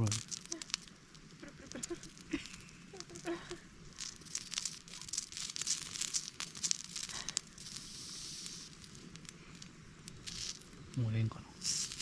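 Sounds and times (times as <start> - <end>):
sausages sizzling in a frying pan: 0.0 - 12.0.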